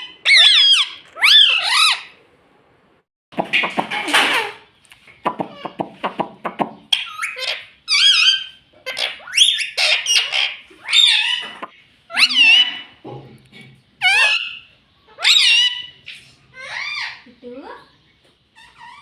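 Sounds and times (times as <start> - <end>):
parakeet chattering and calling: 0.0 - 2.2, 6.7 - 13.0, 13.8 - 17.6, 18.5 - 19.0.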